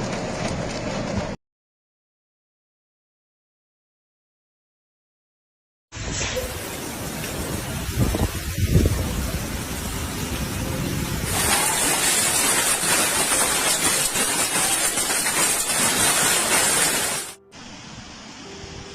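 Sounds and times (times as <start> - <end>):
rushing hiss of water: 6.0 - 18.9.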